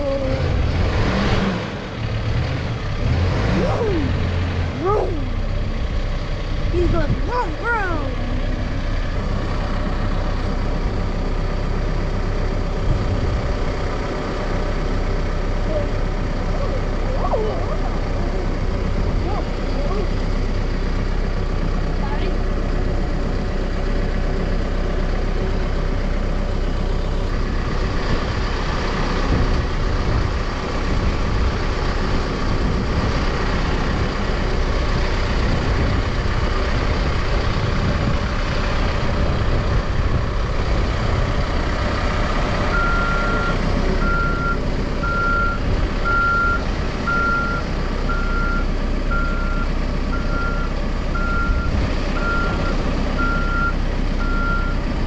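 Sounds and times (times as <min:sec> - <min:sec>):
backhoe diesel engine running: 0:00.0 - 0:55.0
reversing alarm beeping: 0:42.7 - 0:54.8.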